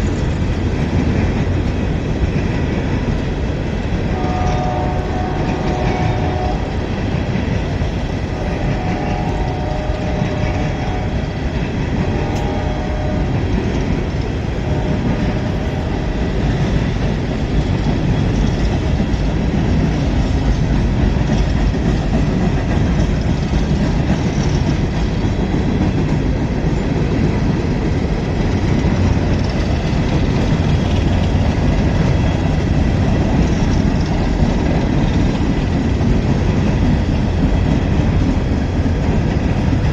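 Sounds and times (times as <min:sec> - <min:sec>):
train wheels rumbling on rails: 0:00.0 - 0:39.9
locomotive horn: 0:04.1 - 0:07.1, 0:08.2 - 0:16.8.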